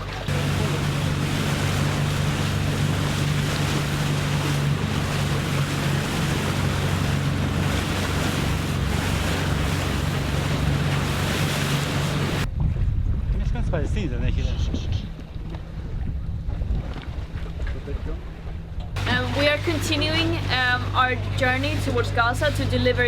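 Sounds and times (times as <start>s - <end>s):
boat engine drone: 0.0s - 12.5s, 14.7s - 23.0s
rushing water: 0.0s - 12.5s, 19.0s - 23.0s
wind buffeting microphone: 0.2s - 23.0s.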